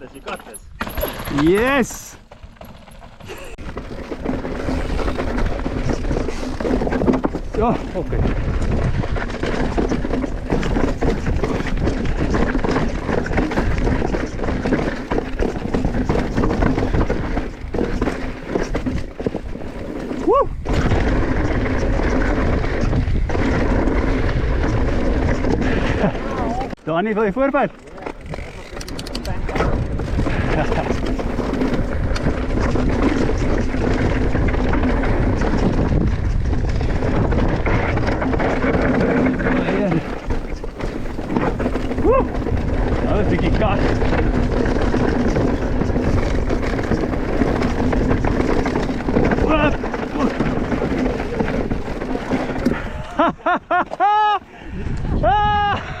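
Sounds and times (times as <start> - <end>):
tyres rolling over dirt and rock: 0.0 - 55.3
bike rattling: 0.0 - 56.0
wind rushing over microphone: 3.6 - 14.7, 20.2 - 26.8, 28.2 - 53.7, 54.5 - 56.0.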